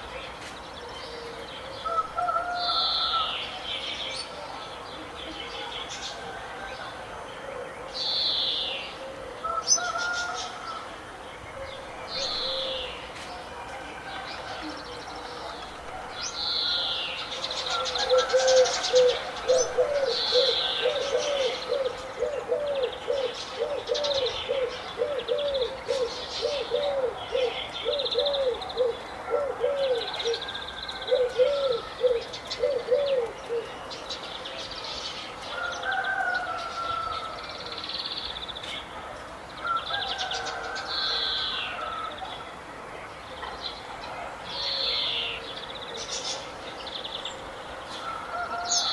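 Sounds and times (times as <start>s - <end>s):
birds chirping and trilling: 0.0s - 39.0s, 39.6s - 48.9s
low repeated bird call: 7.6s - 33.9s.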